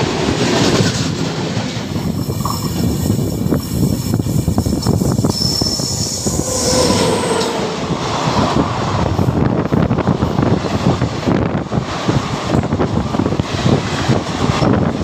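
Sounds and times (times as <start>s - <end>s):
passing train rushing: 0.0s - 15.0s
train wheels rumbling over rails: 0.0s - 15.0s
high wheel squeal: 2.0s - 7.9s.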